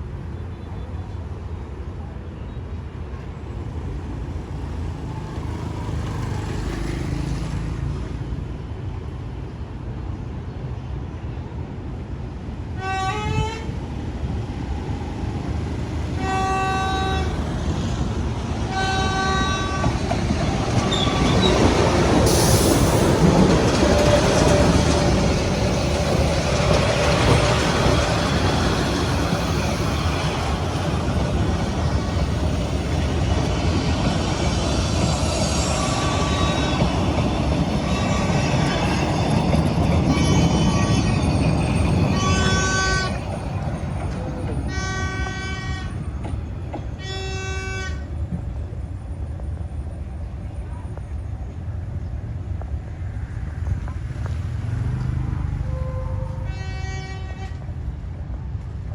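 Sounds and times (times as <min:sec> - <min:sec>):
train engine rumble: 0:00.0 - 0:58.9
train horn blasts: 0:12.8 - 0:13.7, 0:16.2 - 0:17.6, 0:18.7 - 0:20.1, 0:40.1 - 0:41.3, 0:42.0 - 0:43.2, 0:44.7 - 0:46.1, 0:47.0 - 0:48.0, 0:55.6 - 0:57.8
train wheel noise: 0:13.1 - 0:58.9.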